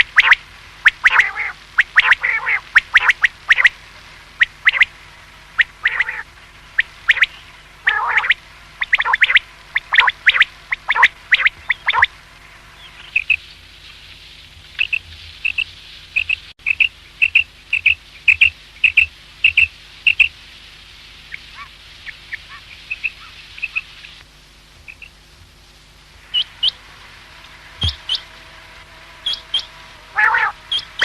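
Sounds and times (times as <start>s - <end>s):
quail whistled calls: 0.0s - 3.8s, 4.4s - 4.9s, 5.6s - 6.2s, 6.8s - 12.1s, 14.8s - 20.3s, 21.3s - 24.0s, 27.8s - 28.3s, 29.2s - 31.0s.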